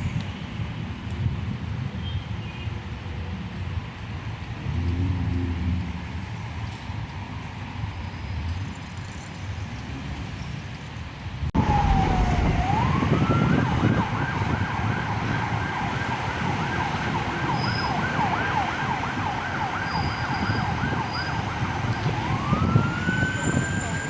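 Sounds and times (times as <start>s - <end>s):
street traffic: 0.0s - 24.0s
emergency vehicle siren: 11.6s - 24.0s.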